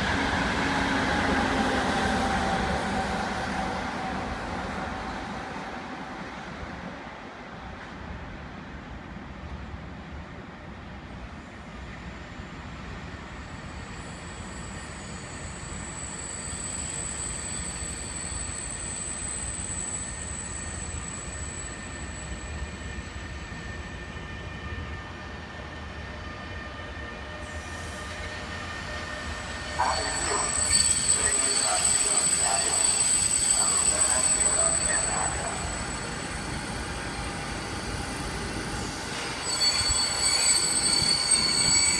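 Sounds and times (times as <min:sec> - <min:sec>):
train rumbling along tracks: 0:00.0 - 0:41.9
wheels squealing on rails: 0:12.2 - 0:41.9.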